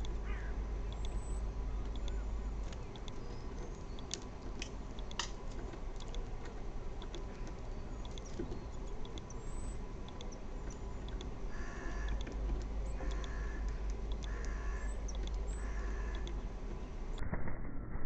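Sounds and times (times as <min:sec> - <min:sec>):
faint clicks: 0:00.0 - 0:17.2
low rumble and hiss: 0:00.0 - 0:18.0
faint high chirps: 0:00.9 - 0:04.1.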